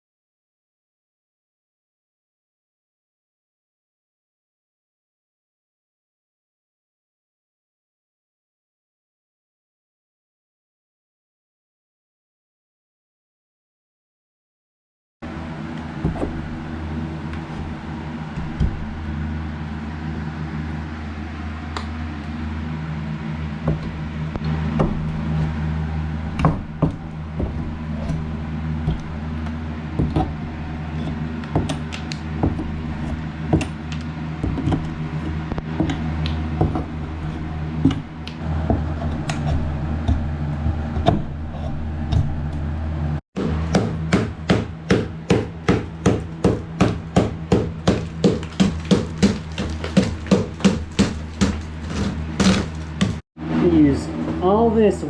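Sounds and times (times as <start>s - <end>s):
steady low hum: 15.3s - 55.0s
nails pulled from studs: 45.3s - 53.2s
wall material torn out: 45.7s - 53.2s.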